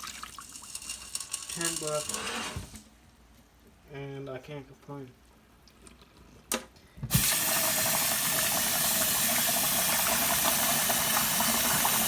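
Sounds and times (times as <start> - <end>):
tap water running into a jar: 0.0 - 2.2, 7.1 - 12.0.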